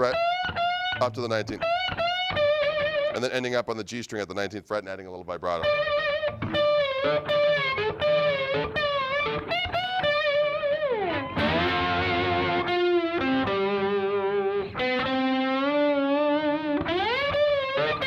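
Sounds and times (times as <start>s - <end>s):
distorted slide electric guitar: 0.0s - 1.0s, 5.6s - 18.0s.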